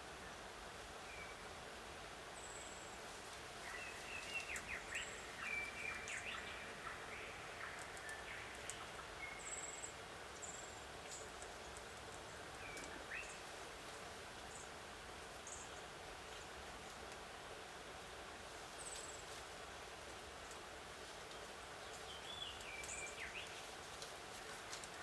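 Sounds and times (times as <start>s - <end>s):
steady background hiss: 0.0s - 25.0s
faint clicks: 11.1s - 13.0s.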